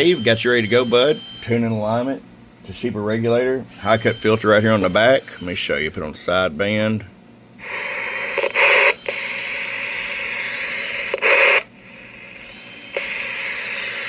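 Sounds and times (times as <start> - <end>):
radio receiver hiss: 7.6 - 14.0.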